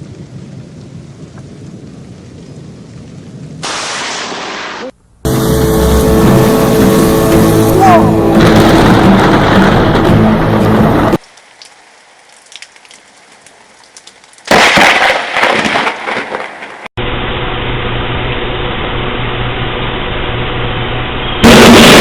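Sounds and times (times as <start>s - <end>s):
rain: 0.0s - 17.8s
loud rush of noise: 3.6s - 11.2s, 17.0s - 22.0s
thunder crack and rumble: 6.9s - 11.2s, 21.4s - 22.0s.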